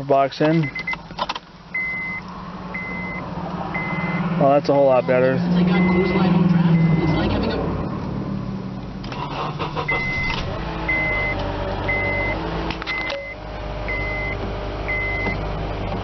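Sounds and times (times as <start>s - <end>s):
car engine idling: 1.0s - 16.0s
short high electronic beeps: 9.8s - 13.4s.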